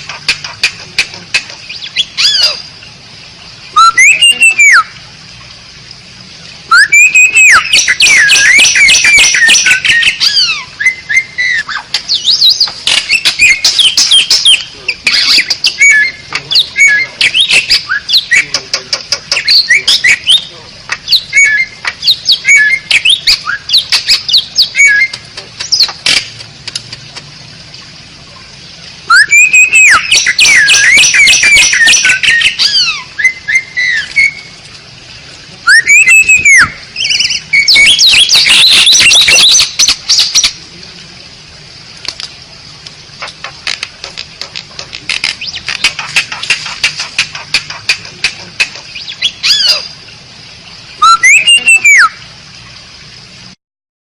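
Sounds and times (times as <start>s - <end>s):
starling chattering and clicking: 0.0s - 1.8s, 11.9s - 22.3s, 22.9s - 27.3s, 29.4s - 32.6s, 37.7s - 40.6s, 42.0s - 49.3s
gliding whistles and harsh squawks: 6.7s - 16.2s, 29.1s - 34.5s, 35.6s - 40.4s, 51.0s - 52.2s.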